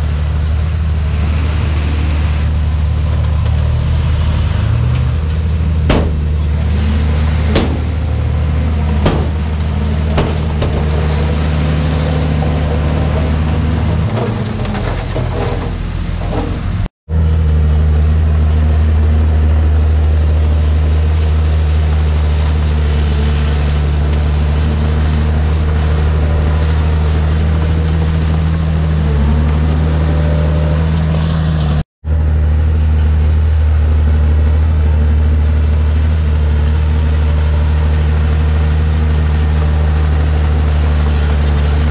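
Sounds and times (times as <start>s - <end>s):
bulldozer diesel engine running: 0.0s - 41.9s
metallic clanks: 5.0s - 6.7s, 7.4s - 16.9s.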